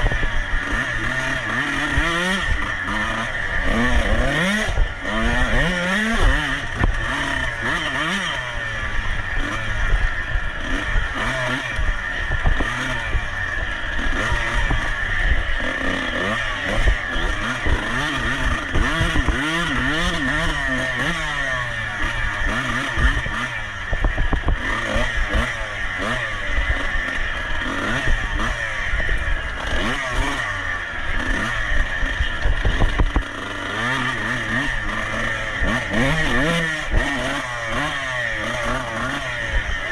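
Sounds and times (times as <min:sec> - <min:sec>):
racing motorcycle engine revving: 0:00.0 - 0:39.9
knocks and clatter: 0:32.4 - 0:33.3.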